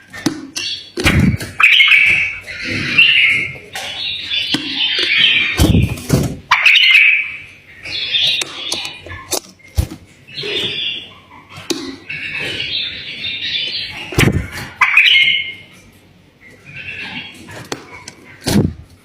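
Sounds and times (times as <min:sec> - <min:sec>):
bulbul singing: 0:00.5 - 0:11.3.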